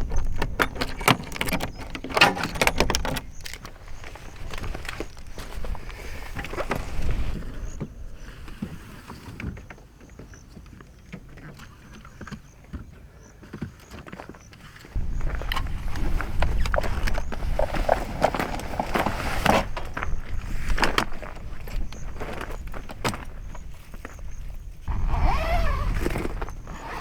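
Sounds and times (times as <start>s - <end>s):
camping gear clinks and knocks: 0.0s - 8.0s, 13.6s - 27.0s.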